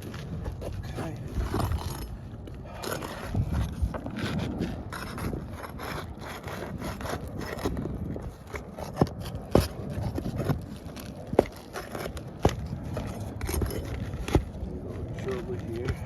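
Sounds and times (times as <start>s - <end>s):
scraping on roof shingles: 0.0s - 16.0s.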